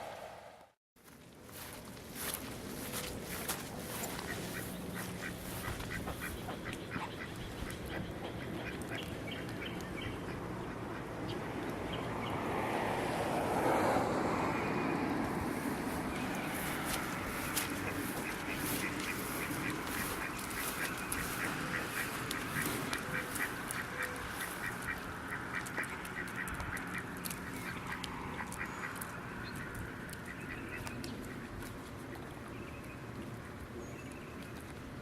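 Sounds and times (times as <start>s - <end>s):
ducks quacking: 3.4s - 11.4s, 15.6s - 31.5s.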